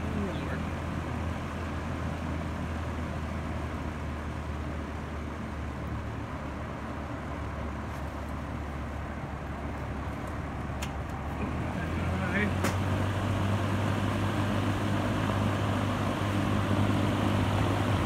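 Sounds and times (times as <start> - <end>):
fan motor hum: 0.0 - 18.0
rush of air from fan: 12.6 - 18.0.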